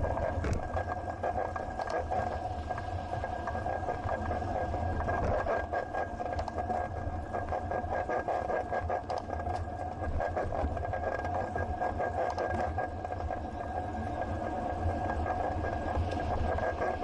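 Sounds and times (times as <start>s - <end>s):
steady hum: 0.0s - 17.0s
small rattles and clicks: 0.1s - 4.4s, 5.0s - 13.4s.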